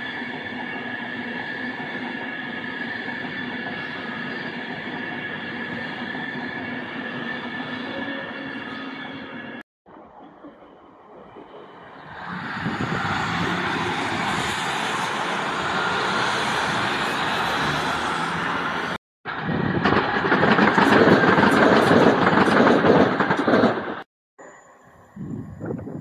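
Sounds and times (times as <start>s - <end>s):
train rolling past: 0.0s - 24.1s
rapid clatter of train wheels: 19.3s - 24.1s.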